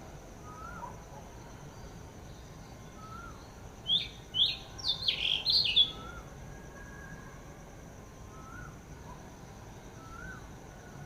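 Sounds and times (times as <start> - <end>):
soft whistled bird notes: 0.4 - 7.4, 8.2 - 9.3, 9.9 - 11.0
sharp high bird chirps: 3.0 - 6.2.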